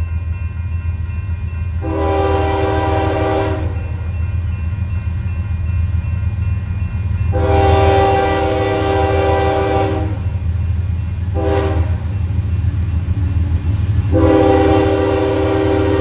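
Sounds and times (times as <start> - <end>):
train rumble: 0.0 - 16.0
locomotive air horn blasts: 1.8 - 3.8, 7.3 - 10.2, 11.3 - 12.0, 14.1 - 16.0.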